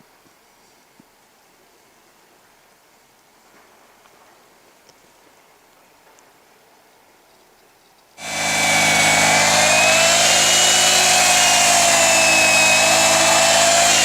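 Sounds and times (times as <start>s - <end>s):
chainsaw engine running: 8.2s - 14.0s.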